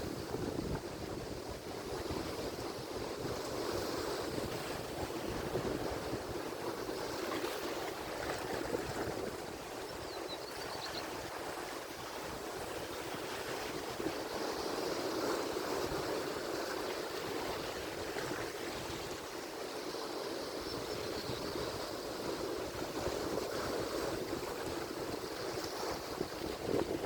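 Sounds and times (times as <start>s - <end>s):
ocean waves breaking: 0.0s - 9.9s.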